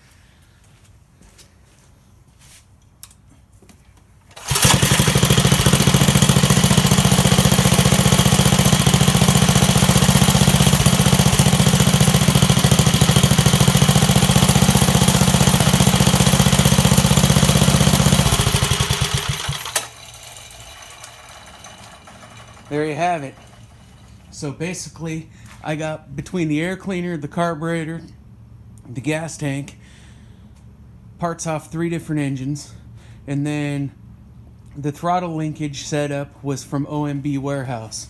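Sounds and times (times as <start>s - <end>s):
click: 3.0s - 3.2s
small engine running: 4.3s - 24.4s.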